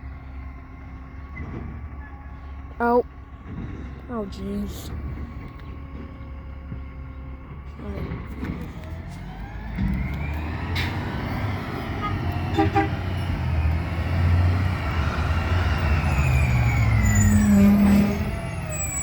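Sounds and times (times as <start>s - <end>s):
garbage truck engine revving: 0.5s - 19.0s.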